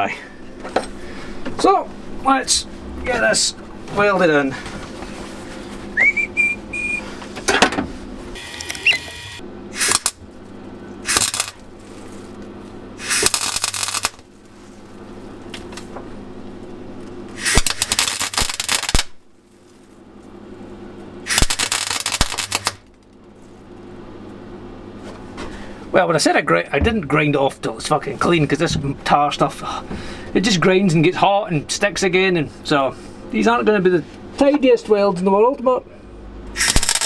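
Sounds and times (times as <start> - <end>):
rising whistle: 6.0 - 7.1, 8.6 - 9.4
crackling welding arc: 8.4 - 10.2, 11.0 - 12.4, 13.0 - 14.3, 17.4 - 19.2, 21.3 - 22.9, 36.6 - 37.0.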